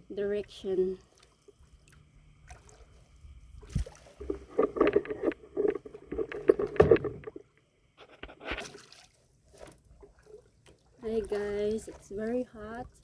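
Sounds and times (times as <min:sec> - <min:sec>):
paddle splashes: 0:03.6 - 0:07.3
paddle knocking against canoe: 0:04.2 - 0:07.4.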